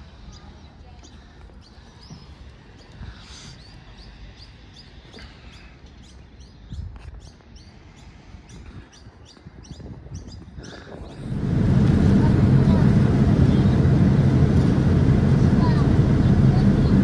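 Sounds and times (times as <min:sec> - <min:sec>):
small birds chirping: 0:00.0 - 0:17.0
low rumble: 0:11.1 - 0:17.0.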